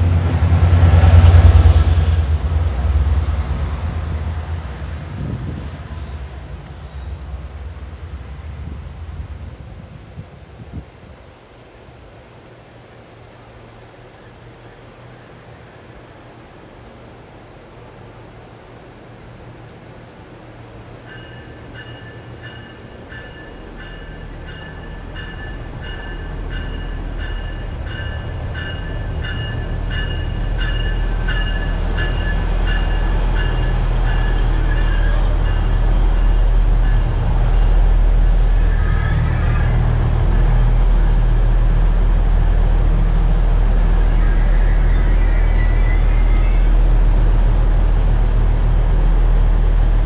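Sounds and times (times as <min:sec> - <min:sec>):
train rumbling: 0:00.0 - 0:50.0
bell ringing: 0:21.1 - 0:37.1
brief squeal: 0:21.2 - 0:33.6, 0:43.9 - 0:46.8.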